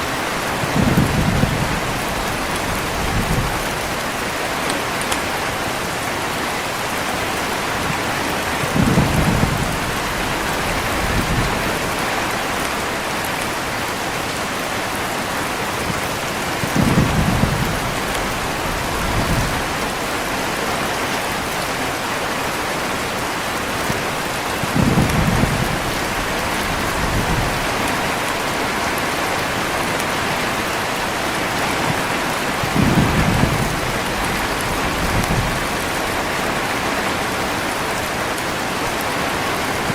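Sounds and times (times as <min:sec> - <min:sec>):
low thunder rumbles: 0:00.0 - 0:05.5, 0:06.8 - 0:12.6, 0:15.8 - 0:20.3, 0:23.9 - 0:29.3, 0:31.2 - 0:37.4
heavy rain pouring: 0:00.0 - 0:39.9.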